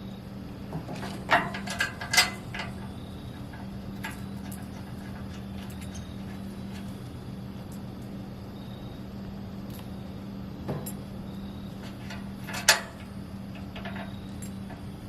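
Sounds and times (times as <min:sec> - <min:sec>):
steady low hum: 0:00.0 - 0:15.0
grill parts clicking and knocking: 0:00.6 - 0:08.2, 0:10.6 - 0:15.0.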